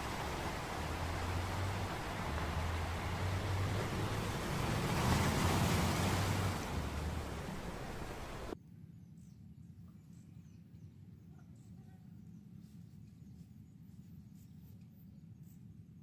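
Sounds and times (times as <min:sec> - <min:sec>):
wind blowing across microphone: 0:00.0 - 0:08.6.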